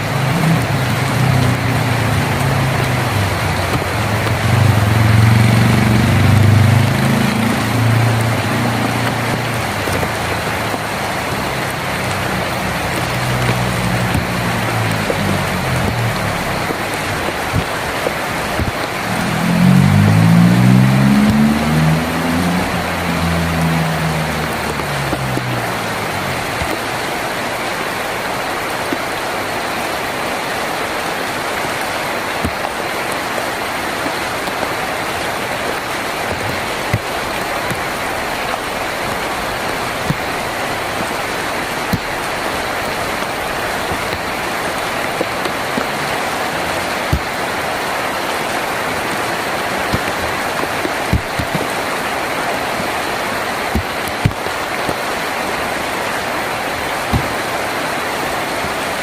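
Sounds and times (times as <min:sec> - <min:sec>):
heavy rain on a tin roof: 0:00.0 - 0:59.0
sharp drop taps: 0:57.1 - 0:57.4.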